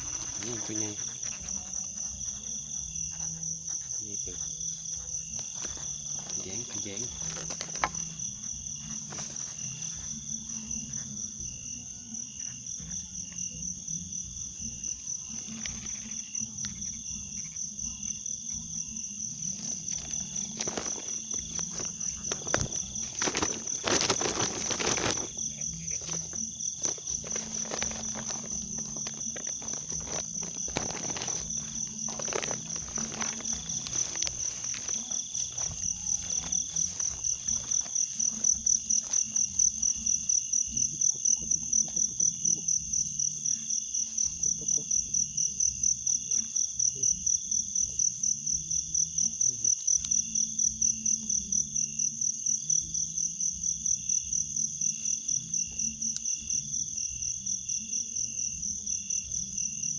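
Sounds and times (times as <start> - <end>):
rustling through grass: 0.0 - 2.5, 4.4 - 10.9, 19.4 - 40.2
footsteps in grass: 0.0 - 11.0, 19.4 - 40.2
insects chirring: 0.0 - 59.9.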